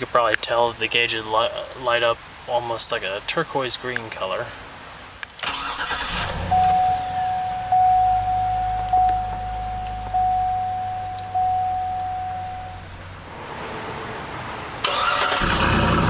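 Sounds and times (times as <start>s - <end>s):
low hum: 6.2s - 13.4s
dashboard warning chime: 6.4s - 13.3s.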